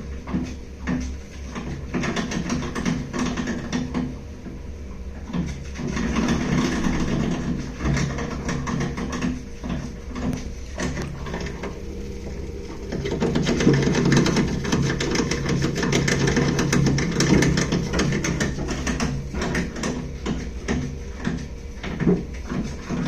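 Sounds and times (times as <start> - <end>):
boiler banging and knocking: 0.0 - 23.0
low hum: 9.6 - 23.0.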